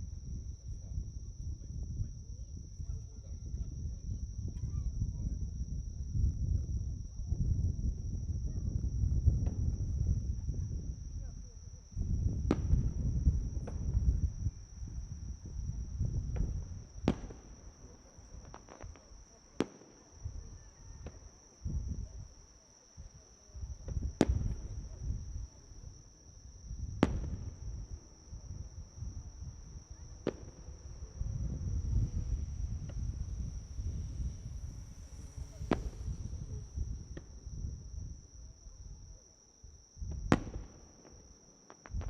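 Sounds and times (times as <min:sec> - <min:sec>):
crickets trilling: 0:00.0 - 0:42.0
fireworks bangs: 0:12.3 - 0:21.4, 0:23.7 - 0:25.9, 0:26.8 - 0:38.6, 0:40.0 - 0:42.0
low rumble: 0:28.6 - 0:38.4.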